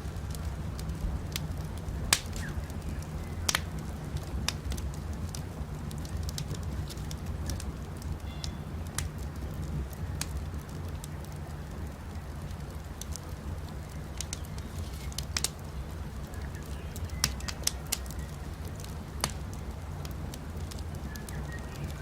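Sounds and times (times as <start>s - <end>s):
campfire crackling and popping: 0.0s - 22.0s
low rumble of fire: 0.0s - 22.0s
faint bird chirps: 8.2s - 8.8s, 21.0s - 22.0s.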